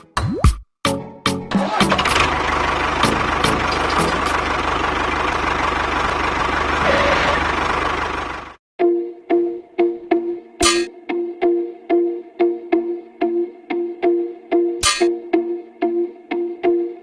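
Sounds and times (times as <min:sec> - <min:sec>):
engine running with low pulse: 0:01.8 - 0:08.6.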